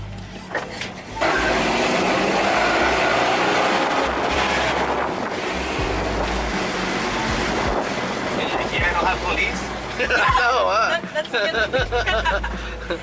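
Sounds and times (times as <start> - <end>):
wind rushing over microphone: 3.3 - 9.0
low rumble: 3.9 - 10.8.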